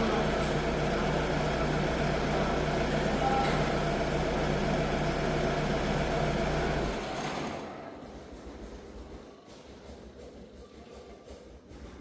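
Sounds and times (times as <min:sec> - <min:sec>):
tractor engine idling: 0:00.0 - 0:07.6.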